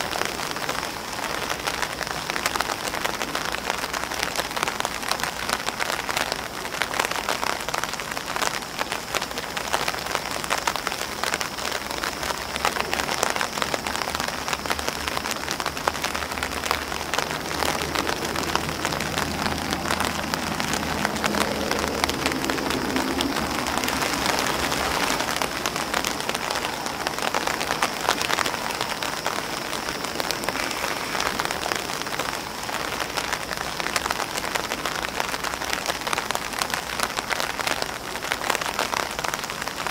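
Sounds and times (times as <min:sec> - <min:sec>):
rain on grass: 0:00.0 - 0:39.9
rain on umbrella: 0:00.0 - 0:39.9.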